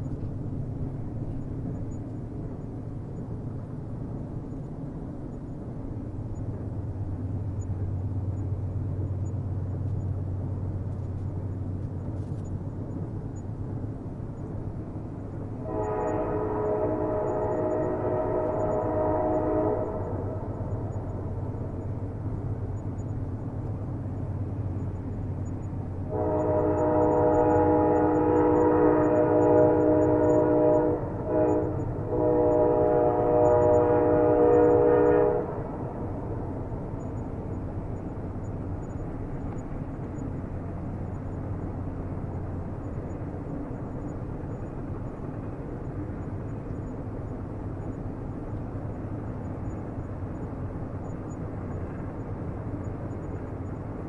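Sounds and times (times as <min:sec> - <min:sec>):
train rumbling: 0:00.0 - 0:54.0
train horn blasts: 0:15.6 - 0:21.8, 0:26.1 - 0:37.2.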